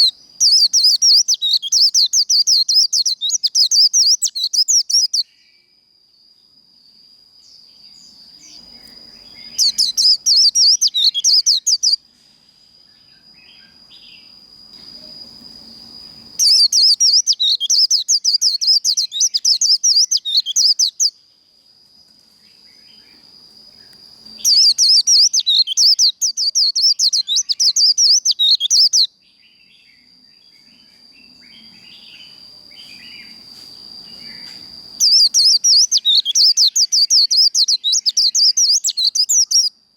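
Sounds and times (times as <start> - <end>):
bird singing rapid chattering song: 0.0 - 5.4, 7.8 - 12.0, 16.2 - 21.2, 23.8 - 33.4, 34.1 - 39.7.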